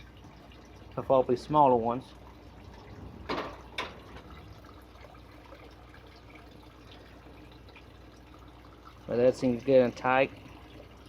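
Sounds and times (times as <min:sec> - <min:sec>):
faint water trickle: 0:00.0 - 0:11.0.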